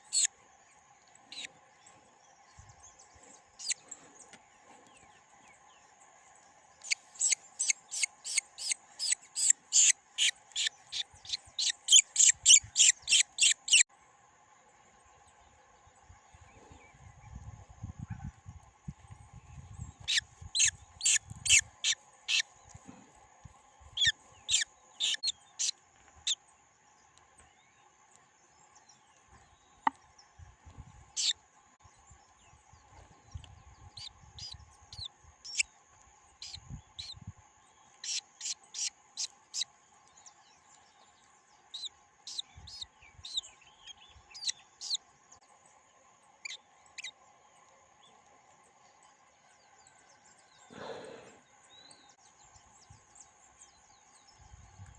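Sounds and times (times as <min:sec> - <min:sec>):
bird chirping: 0:00.0 - 0:00.3, 0:01.0 - 0:05.2, 0:06.8 - 0:13.9, 0:19.8 - 0:23.0, 0:23.9 - 0:26.4, 0:31.2 - 0:31.4, 0:33.3 - 0:35.7, 0:36.4 - 0:45.0, 0:46.4 - 0:47.2.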